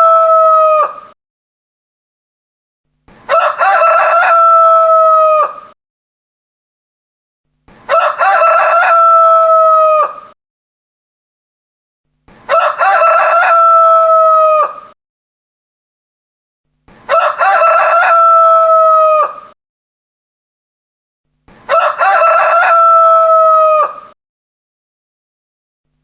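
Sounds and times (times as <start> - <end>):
rooster crowing: 0.0 - 1.1, 3.3 - 5.8, 7.9 - 10.4, 12.5 - 15.0, 17.1 - 19.6, 21.7 - 24.2.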